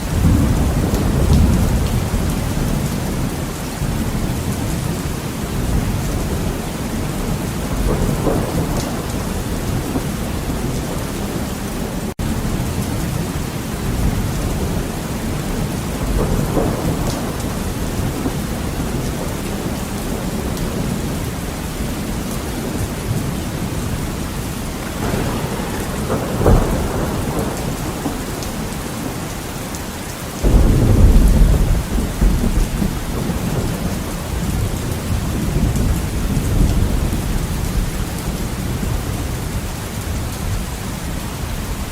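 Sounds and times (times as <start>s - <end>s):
sharp thunderclap: 0.0s - 4.9s, 5.6s - 11.5s, 15.5s - 19.3s, 23.1s - 29.5s, 30.4s - 37.9s
thunder rumbling: 0.0s - 41.5s
heavy rain on window: 0.0s - 41.9s.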